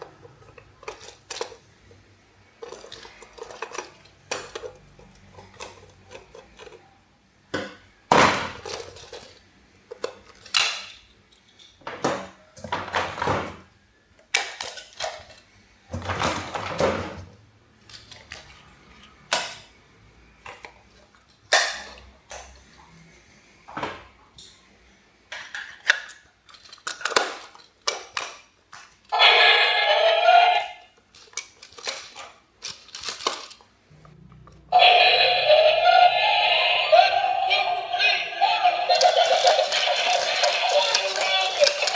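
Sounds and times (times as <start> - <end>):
plastic toys clattering: 0.0 - 6.9, 8.3 - 13.7, 14.3 - 17.2, 17.8 - 19.7, 25.3 - 33.8, 34.8 - 41.9.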